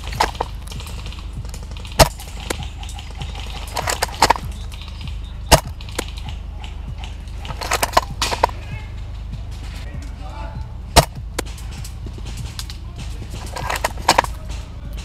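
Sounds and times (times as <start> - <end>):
airsoft gun cracks: 0.0 - 8.6.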